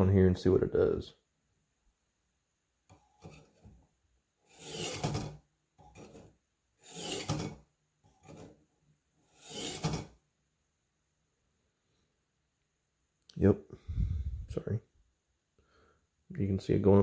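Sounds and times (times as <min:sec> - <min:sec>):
knife rasping through sharpener: 0:04.5 - 0:05.4, 0:06.8 - 0:07.6, 0:09.3 - 0:10.1.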